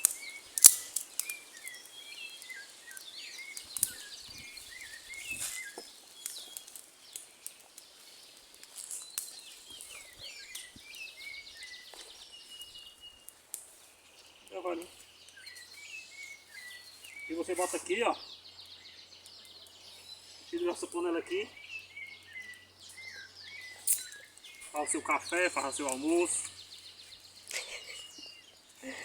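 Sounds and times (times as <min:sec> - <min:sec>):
sharp cracks: 0:00.0 - 0:04.2
birds chirping: 0:00.0 - 0:29.0.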